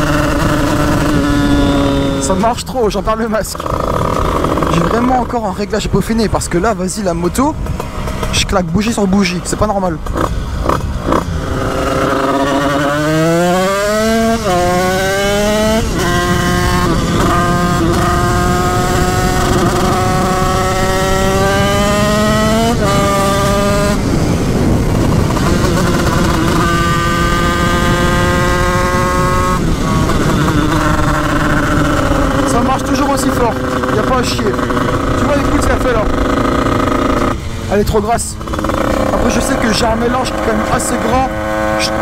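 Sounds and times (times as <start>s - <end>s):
wind rush over microphone: 0.0s - 2.7s, 3.6s - 42.0s
two-stroke engine accelerating: 0.0s - 42.0s
person talking: 2.1s - 3.7s, 4.6s - 7.6s, 8.3s - 10.1s, 32.3s - 36.3s, 37.6s - 38.4s, 39.1s - 42.0s.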